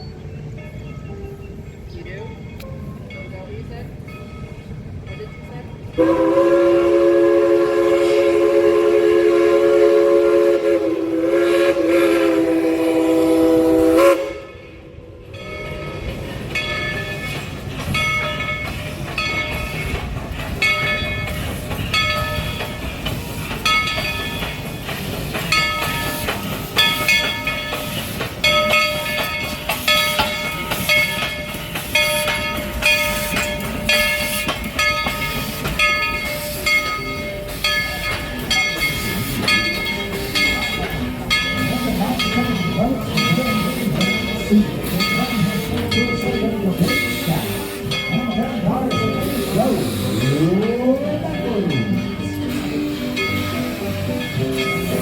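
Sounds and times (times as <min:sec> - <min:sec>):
locomotive bell ringing: 0:00.0 - 0:55.0
steam locomotive whistle: 0:06.0 - 0:15.3, 0:24.9 - 0:55.0.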